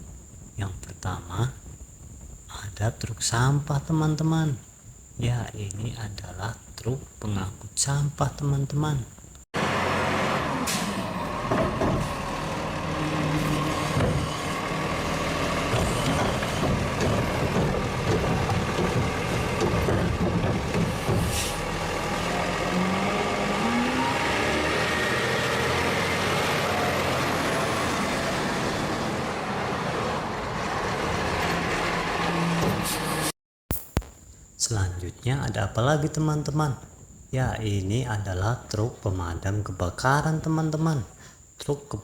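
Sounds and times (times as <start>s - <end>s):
street noise: 9.1s - 34.3s
heavy truck engine running: 9.6s - 33.3s.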